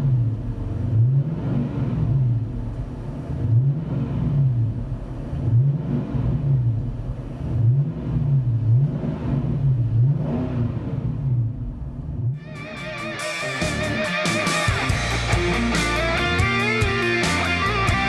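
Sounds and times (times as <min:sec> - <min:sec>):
car engine revving deep: 0:00.0 - 0:12.4.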